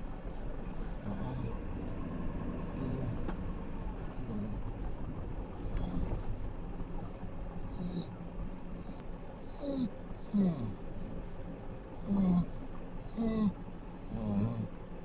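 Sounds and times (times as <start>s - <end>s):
truck engine and road rumble: 0.0s - 15.0s.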